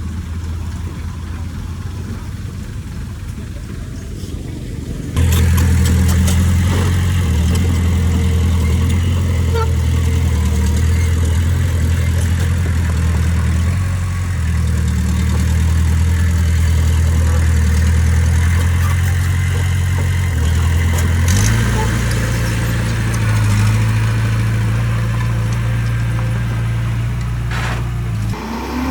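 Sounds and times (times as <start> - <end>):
diesel engine droning: 0.0 - 28.9.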